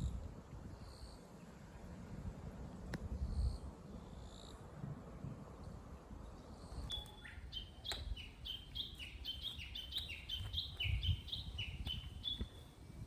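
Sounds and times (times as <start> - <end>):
songbird whistled notes: 6.8 - 12.6.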